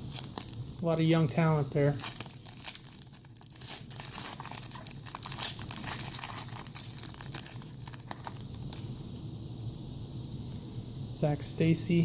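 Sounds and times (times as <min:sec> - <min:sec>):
plastic wrapper crinkling and tearing: 0:00.0 - 0:09.0.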